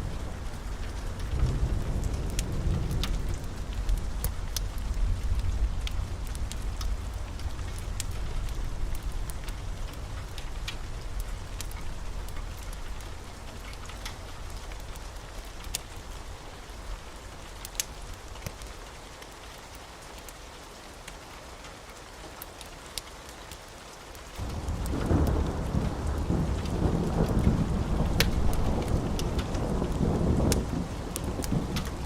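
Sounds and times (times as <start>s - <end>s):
thunder rumble: 0.0s - 16.2s, 24.4s - 32.0s
steady rain: 0.0s - 32.0s
sharp drip-like ticks: 0.1s - 32.0s.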